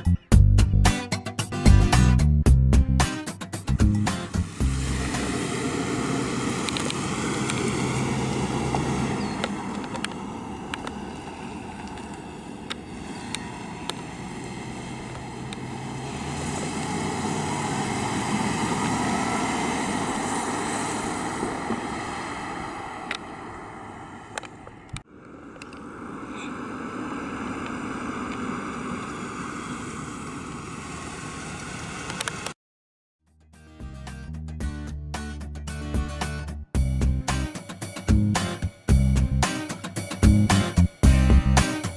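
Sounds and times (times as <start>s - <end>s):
road and wind noise: 0.0s - 0.9s, 3.7s - 32.6s, 36.8s - 39.5s, 40.2s - 41.9s
car engine running: 3.7s - 22.1s.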